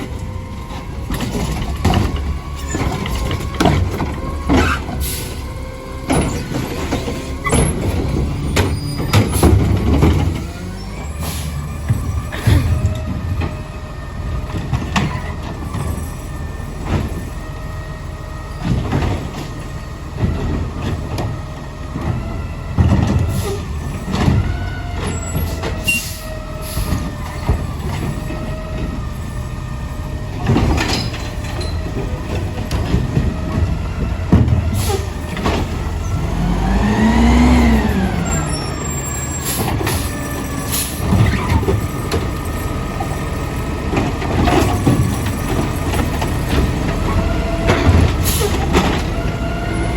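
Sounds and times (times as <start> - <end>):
garbage truck engine running: 0.0 - 49.9
sharp knocks and bangs: 30.4 - 38.5.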